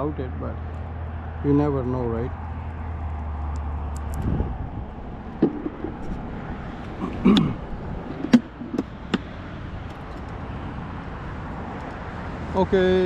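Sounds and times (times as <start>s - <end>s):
steady background noise: 2.2s - 12.9s
sharp knocks and clicks: 5.4s - 6.2s, 6.8s - 10.4s.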